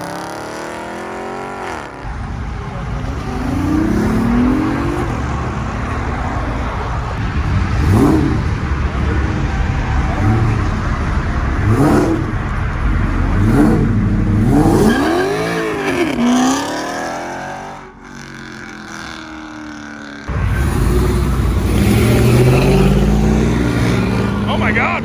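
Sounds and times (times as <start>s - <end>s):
car accelerating hard: 0.0s - 25.0s
car engine revving: 0.0s - 25.0s
car pulling away: 0.0s - 25.0s.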